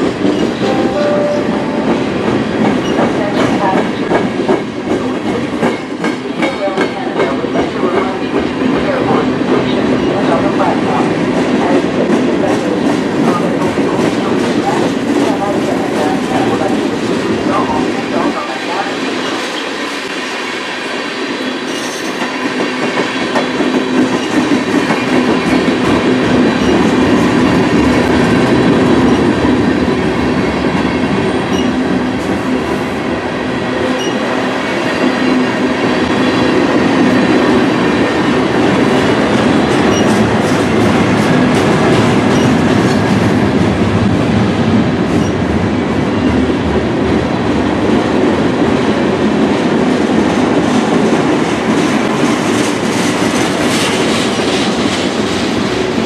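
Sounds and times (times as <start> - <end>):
freight train wheels clattering: 48.7 - 56.0.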